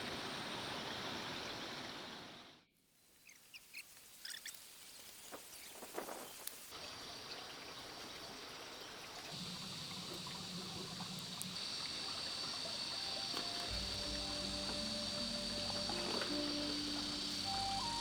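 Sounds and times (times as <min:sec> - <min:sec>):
water trickling: 0:08.2 - 0:18.0
background music: 0:13.0 - 0:18.0.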